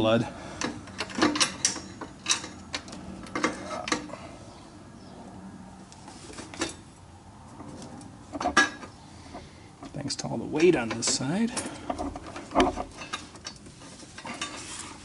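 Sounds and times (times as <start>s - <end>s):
metal hardware clinking: 0.6s - 4.1s, 10.6s - 14.8s.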